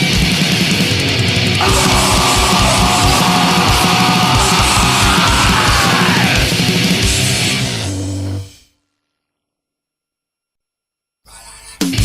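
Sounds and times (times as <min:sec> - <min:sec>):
punk band playing: 0:01.4 - 0:07.7
fast pounding drums: 0:01.6 - 0:07.4.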